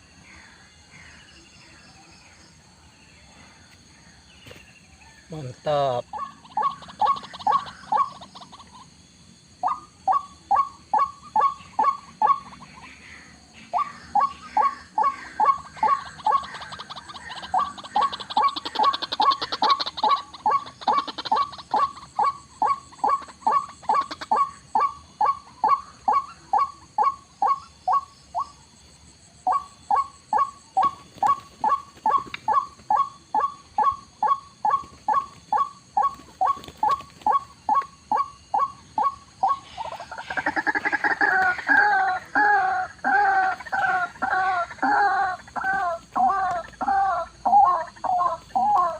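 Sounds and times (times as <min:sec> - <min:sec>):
waterhen calling: 0:05.3 - 0:08.8, 0:13.8 - 0:28.6, 0:29.4 - 0:48.9.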